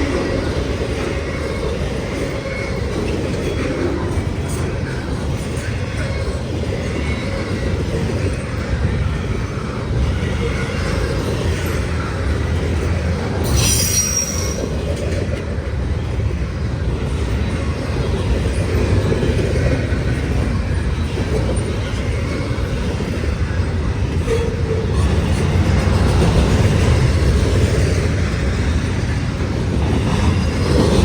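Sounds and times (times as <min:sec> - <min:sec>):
freight cars rumbling on rails: 0:00.0 - 0:31.0
high-pitched wheel squeal: 0:13.4 - 0:14.8.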